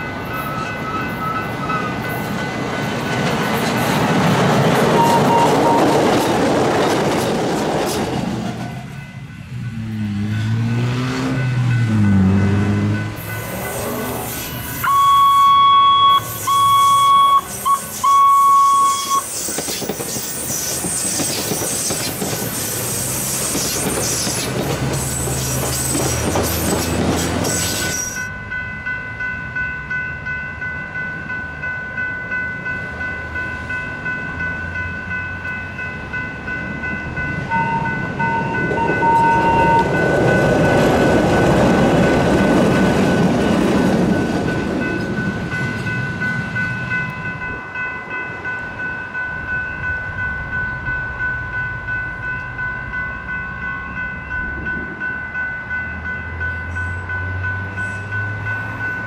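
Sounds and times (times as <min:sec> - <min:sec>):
crossing bell dinging: 0:00.0 - 0:07.2, 0:08.4 - 0:59.0
train rumbling past on rails: 0:00.0 - 0:59.0
train horn blasts: 0:05.0 - 0:06.0.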